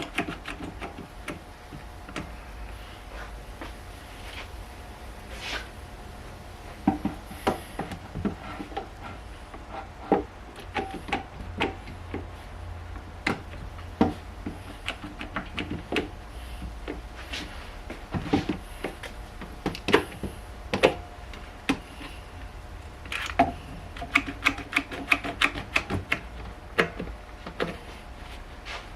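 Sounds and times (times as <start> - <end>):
sharp clicks and knocks: 0.0 - 2.3, 13.2 - 17.0, 23.0 - 27.8
steady low hum: 0.0 - 28.9.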